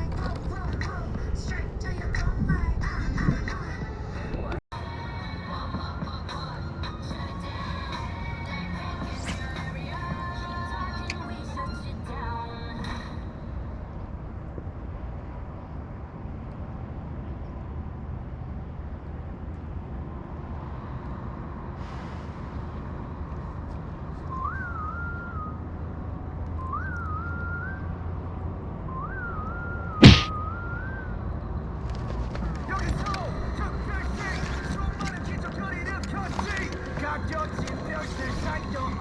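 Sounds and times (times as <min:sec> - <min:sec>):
sharp loud knock: 0:30.0 - 0:30.3.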